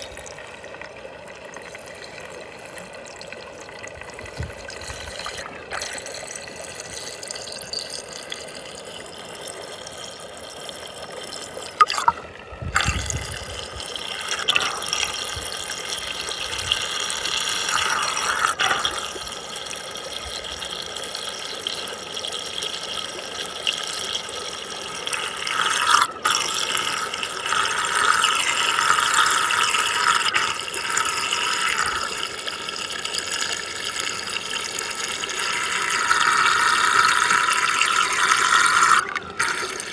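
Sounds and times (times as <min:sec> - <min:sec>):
water rushing down a whirlpool: 0:00.0 - 0:23.0.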